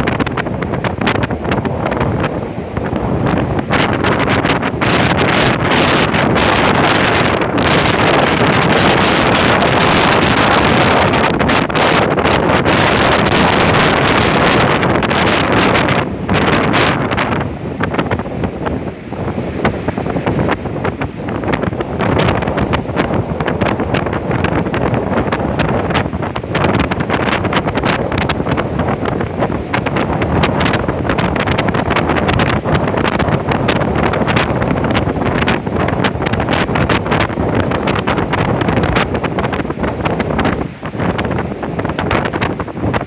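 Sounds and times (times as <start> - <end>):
storm wind buffeting microphone: 0.0 - 43.0.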